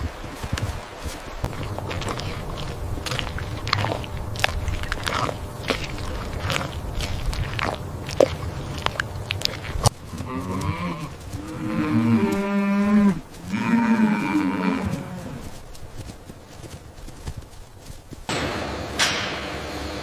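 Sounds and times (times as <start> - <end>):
cow mooing: 10.1 - 15.6.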